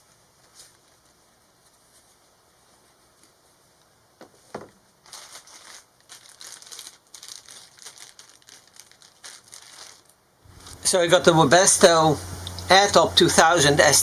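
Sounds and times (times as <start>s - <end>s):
packaging crinkling: 5.0s - 10.9s.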